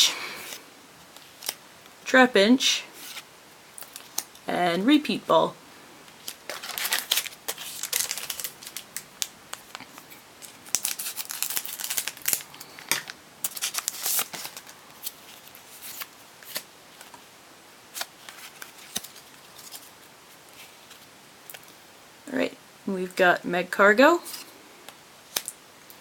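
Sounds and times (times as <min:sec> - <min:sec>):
foil wrapper crinkling: 0:03.8 - 0:04.4, 0:06.2 - 0:17.2, 0:17.9 - 0:21.7.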